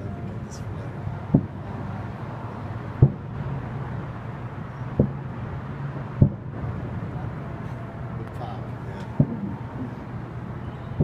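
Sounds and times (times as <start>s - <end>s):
low background rumble: 0.0s - 11.0s
distant fireworks booms: 1.3s - 1.7s, 2.9s - 3.6s, 4.9s - 5.4s, 6.1s - 7.1s, 9.0s - 10.2s.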